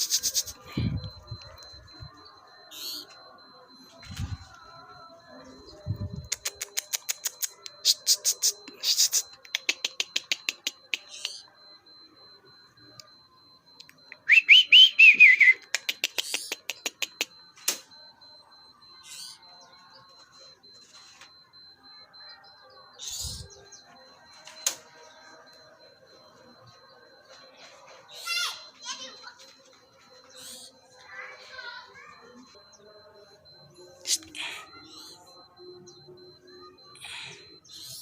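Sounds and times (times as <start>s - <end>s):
faint bird chirps: 0.0s - 20.6s, 21.3s - 27.3s
bird ticking calls: 14.1s - 17.3s.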